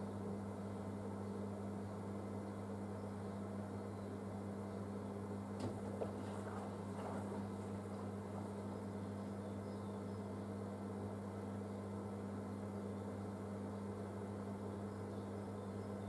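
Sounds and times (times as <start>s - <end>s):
washing machine humming: 4.2s - 11.4s
soft knocks and swishes: 5.6s - 8.6s.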